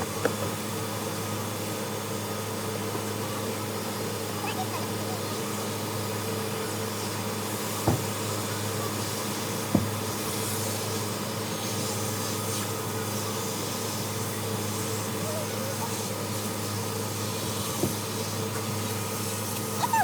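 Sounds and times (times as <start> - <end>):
vacuum cleaner humming: 0.0 - 20.0
short knocks: 9.7 - 10.0.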